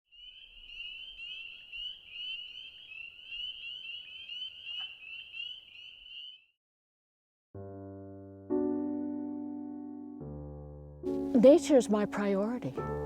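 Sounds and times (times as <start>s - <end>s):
chorus of frogs peeping: 0.1s - 6.5s.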